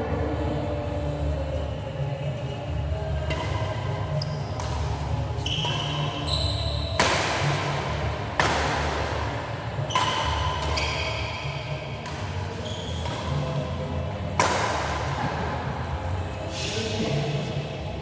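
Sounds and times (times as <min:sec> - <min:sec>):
steady low hum: 0:00.0 - 0:06.1
high shoe squeaks: 0:04.1 - 0:07.5, 0:09.8 - 0:13.6
racket hitting shuttlecock: 0:04.6 - 0:13.6, 0:14.4 - 0:15.5.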